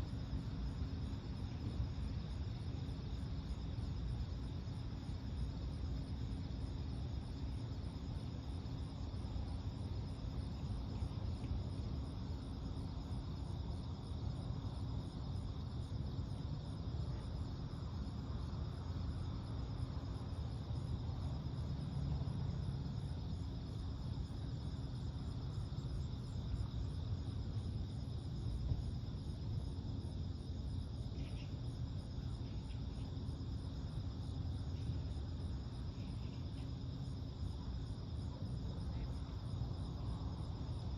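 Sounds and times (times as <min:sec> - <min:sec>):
low background rumble: 0:00.0 - 0:40.9
night insects trilling: 0:00.0 - 0:40.9.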